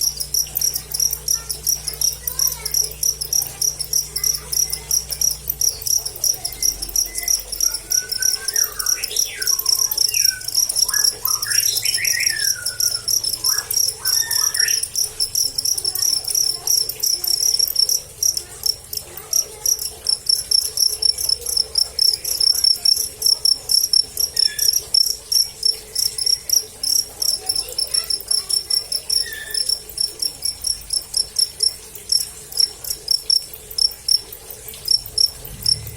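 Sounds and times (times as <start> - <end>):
crickets chirping: 0.0 - 35.9.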